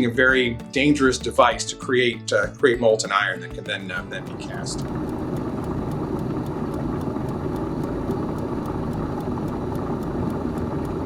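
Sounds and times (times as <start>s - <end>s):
faint regular ticking: 1.5s - 11.0s
air blower rumbling: 2.4s - 11.0s.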